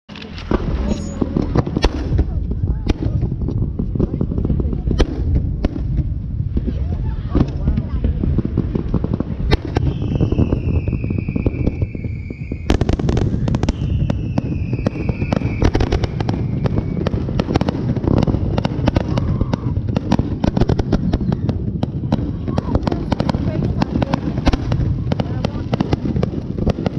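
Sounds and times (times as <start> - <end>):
fireworks cracking and banging: 0.1 - 26.9
falling firework whistles: 9.4 - 17.4.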